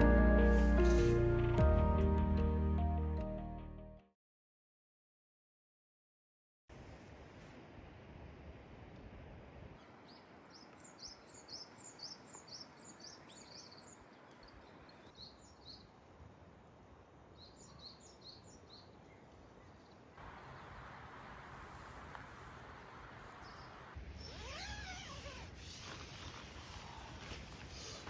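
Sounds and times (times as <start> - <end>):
songbird chirping: 9.8 - 16.2, 17.2 - 20.9.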